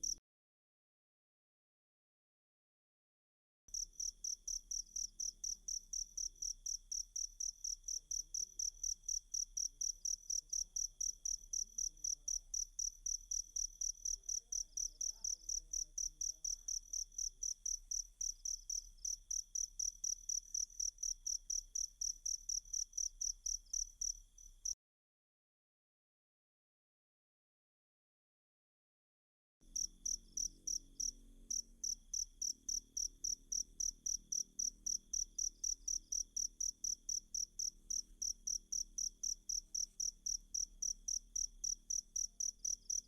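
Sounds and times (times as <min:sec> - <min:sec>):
cricket chirping: 0:03.7 - 0:24.8, 0:29.7 - 0:43.0.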